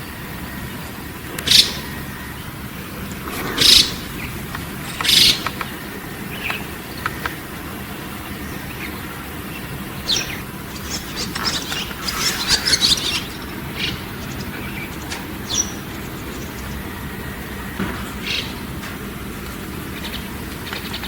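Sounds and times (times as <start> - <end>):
bird chattering notes: 1.4 - 2.0, 3.4 - 7.4, 10.0 - 16.9
songbird calls: 1.4 - 2.6, 3.4 - 7.4, 8.2 - 16.9, 18.2 - 18.7, 19.8 - 21.0.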